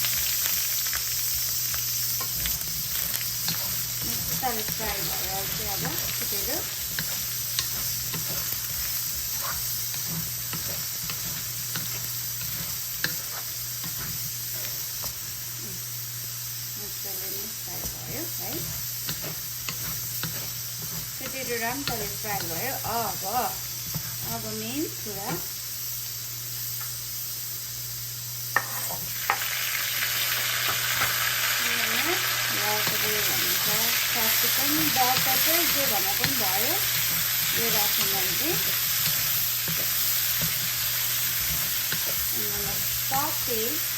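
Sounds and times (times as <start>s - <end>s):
potatoes sizzling in a pan: 0.0s - 43.9s
spatula scraping a pan: 1.3s - 15.4s, 17.8s - 24.5s, 28.6s - 29.4s, 31.8s - 43.9s.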